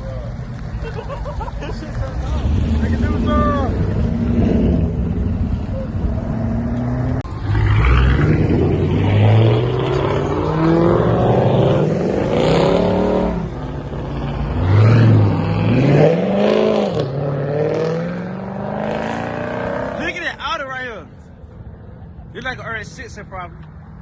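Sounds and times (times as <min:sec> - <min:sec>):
car engine revving: 0:01.7 - 0:20.4.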